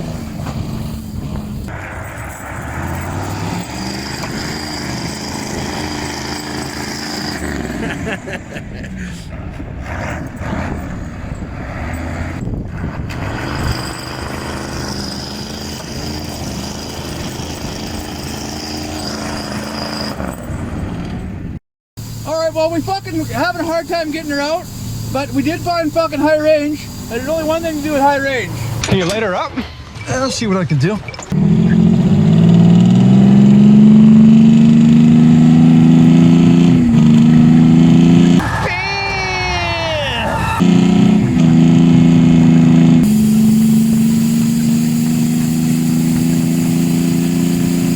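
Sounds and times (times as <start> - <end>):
truck diesel engine running: 0.0 - 20.0, 22.0 - 28.8, 31.4 - 38.4, 40.6 - 47.9
falling whine: 40.4 - 47.9.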